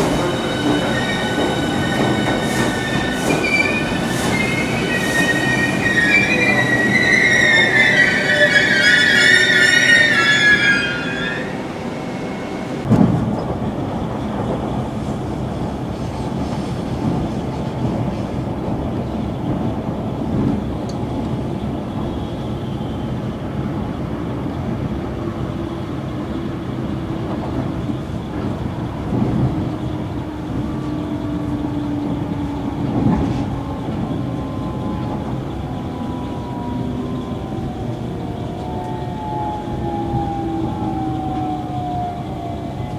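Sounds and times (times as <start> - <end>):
train wheels knocking: 0.0 - 8.0
train rumbling on rails: 0.0 - 42.9.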